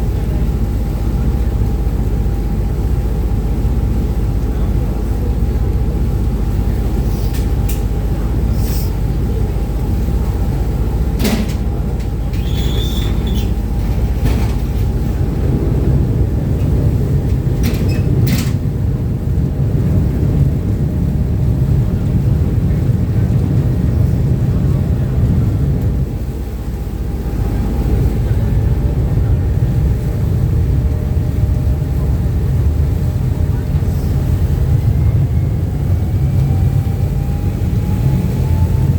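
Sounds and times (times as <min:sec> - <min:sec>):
boat engines low rumble: 0:00.0 - 0:38.9.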